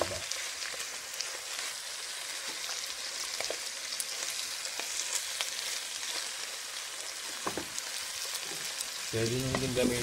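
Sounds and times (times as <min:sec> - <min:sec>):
meat sizzling in a pan: 0:00.0 - 0:10.0.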